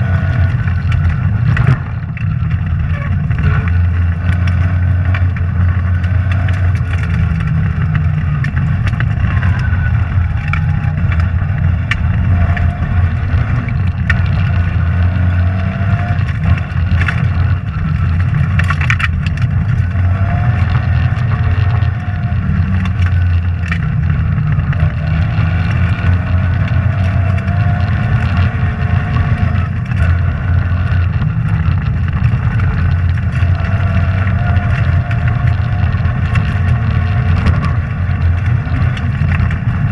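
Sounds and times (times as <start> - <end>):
rally car engine revving: 0.0 - 39.9.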